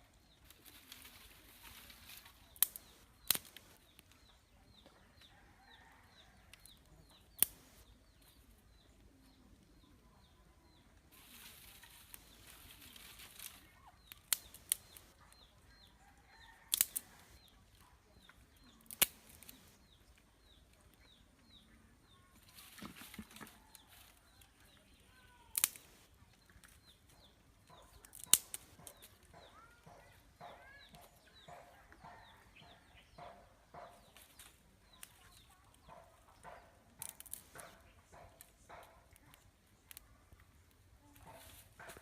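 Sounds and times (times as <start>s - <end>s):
rustling: 0.4s - 3.8s, 11.1s - 15.2s.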